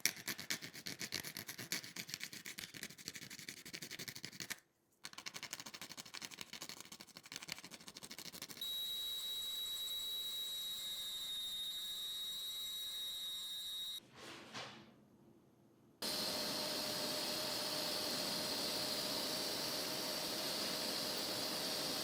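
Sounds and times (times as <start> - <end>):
small motor whining: 16.0 - 22.0.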